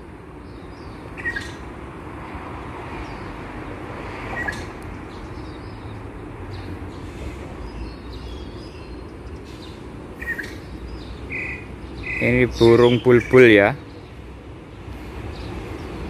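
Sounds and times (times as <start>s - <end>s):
birds chirping: 0.0s - 1.8s, 2.8s - 3.5s, 4.2s - 16.0s
high bird calls: 0.4s - 1.7s, 4.3s - 14.2s.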